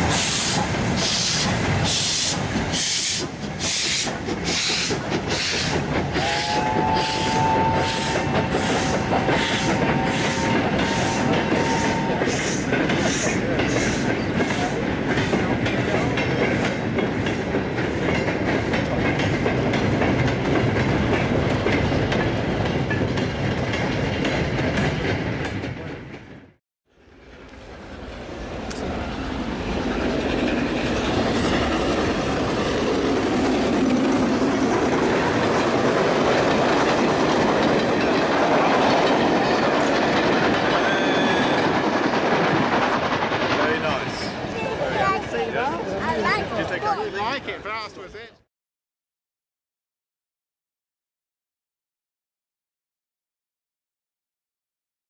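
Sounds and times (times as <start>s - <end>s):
train rolling past: 0.0s - 48.4s
wagon wheels clicking over rail joints: 0.7s - 7.1s, 31.6s - 44.2s.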